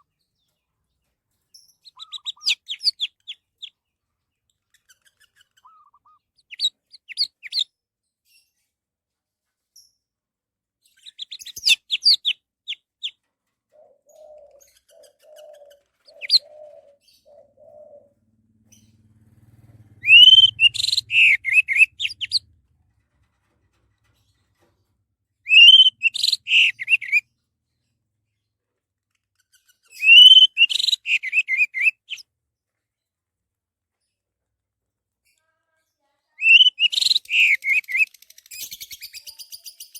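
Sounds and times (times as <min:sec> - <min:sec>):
thrush singing whistled phrases: 0:20.0 - 0:22.4, 0:25.5 - 0:27.2, 0:30.0 - 0:32.0, 0:36.4 - 0:39.9.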